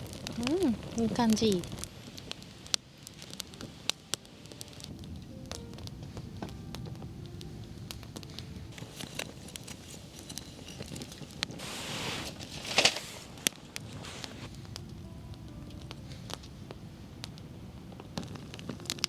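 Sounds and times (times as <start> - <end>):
campfire crackling: 0.0 - 19.0
brief hiss: 11.5 - 14.6.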